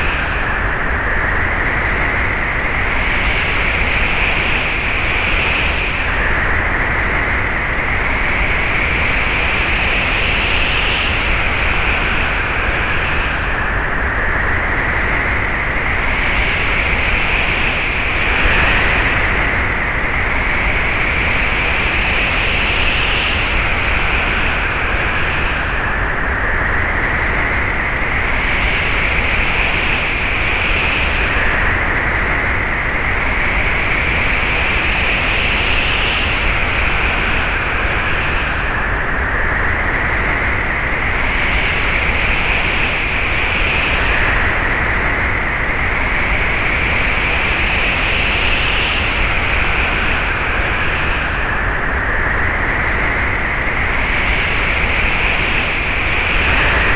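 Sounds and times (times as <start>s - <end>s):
high wind whistle: 11.2s - 56.9s
wind rushing: 49.0s - 56.9s.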